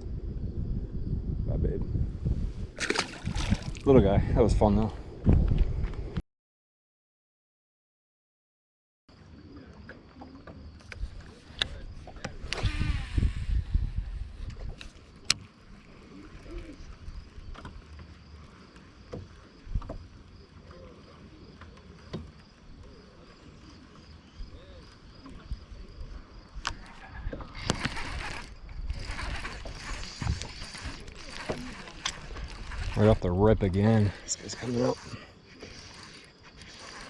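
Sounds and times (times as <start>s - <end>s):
small knocks and clicks: 17.4s - 20.3s, 21.5s - 22.9s.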